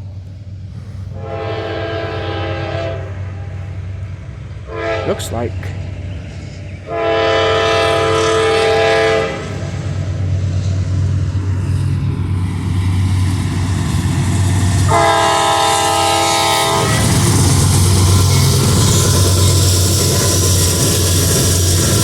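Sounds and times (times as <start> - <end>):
train engine rumble: 0.0 - 22.0
locomotive air horn blasts: 1.1 - 3.7, 4.7 - 5.4, 6.9 - 9.8, 14.9 - 17.1.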